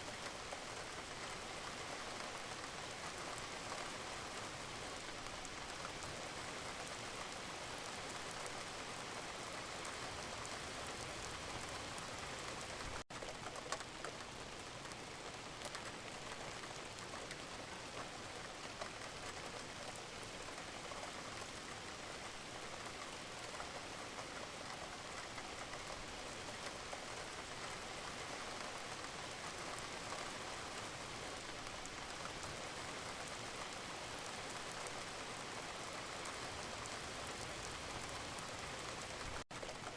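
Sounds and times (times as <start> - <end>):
steady rain hiss: 0.0 - 39.9
raindrops ticking: 10.8 - 39.9.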